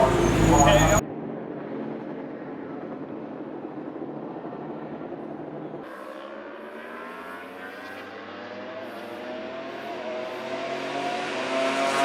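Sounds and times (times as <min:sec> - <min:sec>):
racing motorcycle engine accelerating: 0:05.9 - 0:12.0.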